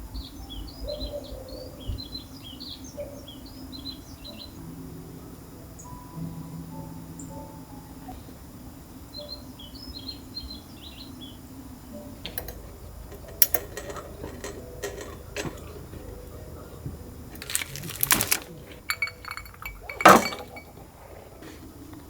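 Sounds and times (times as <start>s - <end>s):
clattering clink: 13.1s - 15.8s, 17.4s - 20.8s
objects being handled: 17.3s - 20.8s.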